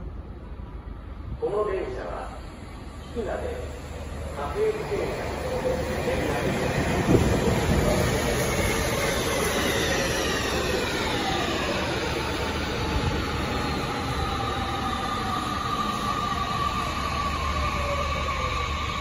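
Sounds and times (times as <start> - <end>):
train wheels rumbling on rails: 3.2 - 19.0.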